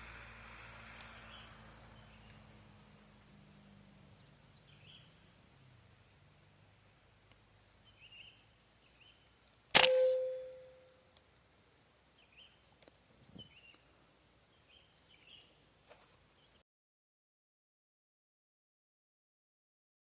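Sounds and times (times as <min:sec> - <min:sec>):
faint chirping calls: 0:01.1 - 0:02.7, 0:03.4 - 0:06.2, 0:06.8 - 0:11.0, 0:12.1 - 0:15.6
air rifle shot: 0:09.8 - 0:10.7.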